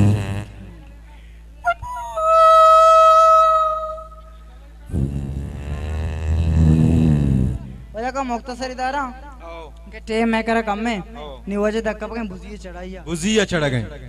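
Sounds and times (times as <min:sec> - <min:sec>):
man imitating droning engine: 0:00.0 - 0:00.8, 0:01.7 - 0:07.9.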